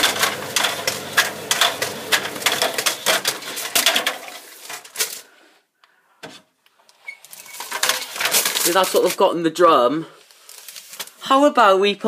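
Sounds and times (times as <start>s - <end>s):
items clattering in tumble dryer: 0.0s - 5.4s, 7.0s - 9.4s.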